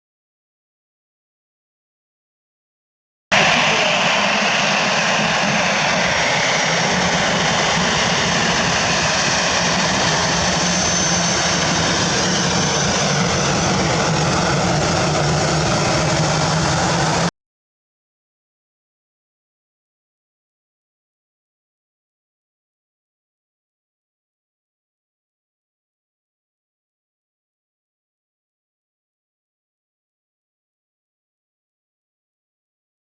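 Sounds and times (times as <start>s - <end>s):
jet engines whining and rumbling: 3.3s - 17.3s.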